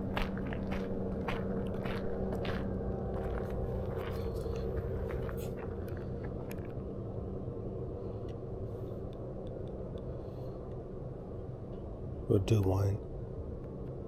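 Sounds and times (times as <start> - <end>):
footsteps on trail: 0.0 - 6.4
low rumble: 0.0 - 12.3.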